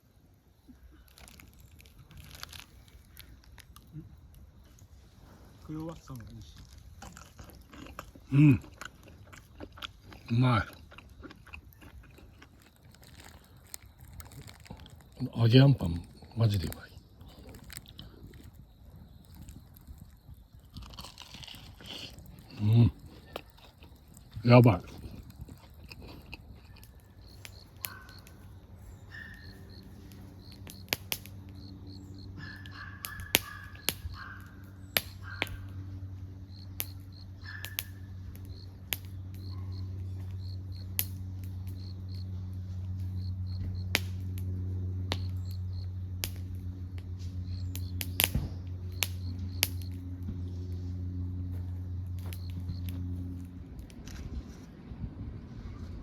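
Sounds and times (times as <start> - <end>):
steady low hum: 0.0 - 56.0
crows cawing: 29.1 - 29.6, 32.4 - 34.6, 35.2 - 35.7
sharp clicks: 47.7 - 50.0.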